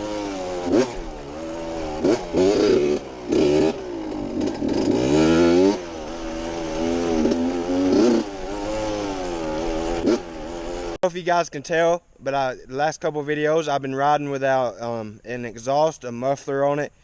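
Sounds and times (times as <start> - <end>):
two-stroke dirt bike engine revving: 0.0 - 11.0.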